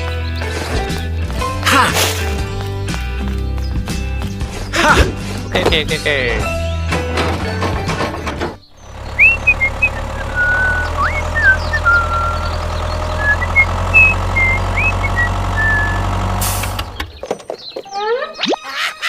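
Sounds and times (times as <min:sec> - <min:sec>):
tractor engine running: 0:06.9 - 0:17.4
high whistled chirps: 0:09.2 - 0:16.0.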